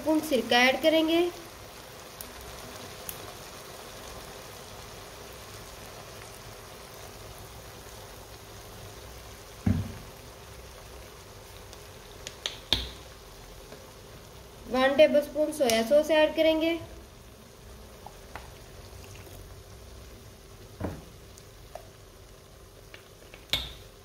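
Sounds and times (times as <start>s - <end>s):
chicken sizzling in wok: 0.0s - 24.0s
thump: 9.6s - 10.0s, 20.8s - 21.1s.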